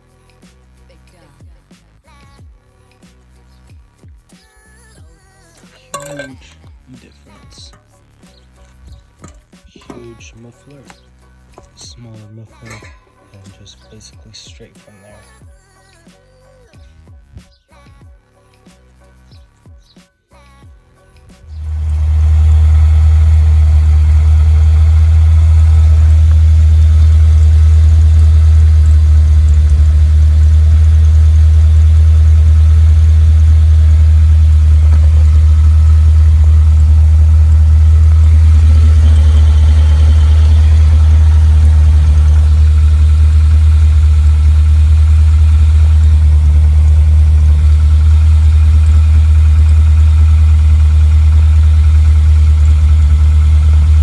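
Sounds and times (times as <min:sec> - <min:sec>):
car engine idling: 0:05.6 - 0:14.6, 0:21.0 - 0:54.0
low exhaust drone: 0:21.4 - 0:54.0.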